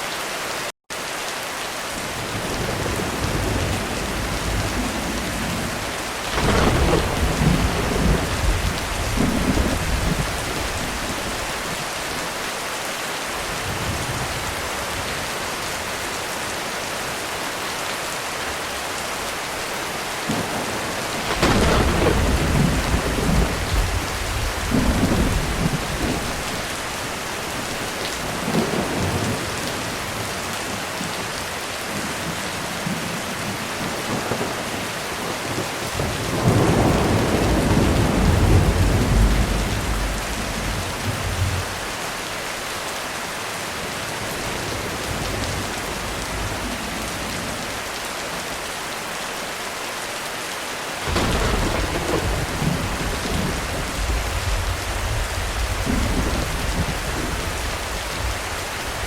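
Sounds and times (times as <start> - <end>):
heavy rain on a roof: 0.0 - 59.0
thunder rumbling: 2.2 - 11.8, 20.2 - 30.8, 31.9 - 42.0, 51.0 - 59.0.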